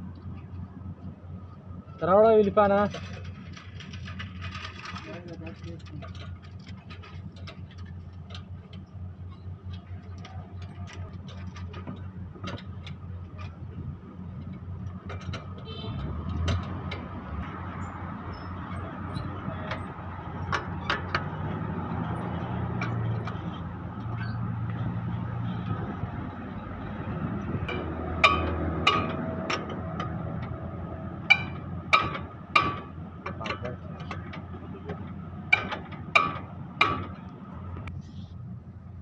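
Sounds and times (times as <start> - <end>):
metal clicks and knocks: 14.3 - 17.6, 18.6 - 24.8, 27.6 - 37.9.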